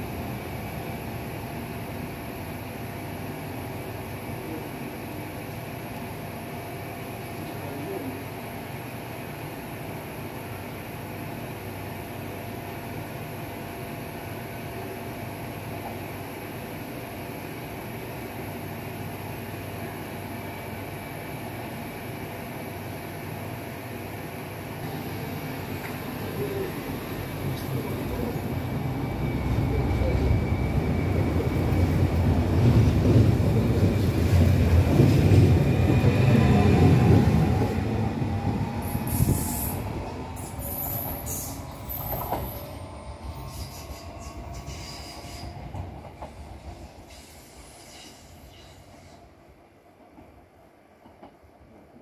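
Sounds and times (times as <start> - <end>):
train wheels rumbling and squealing: 24.8 - 49.4.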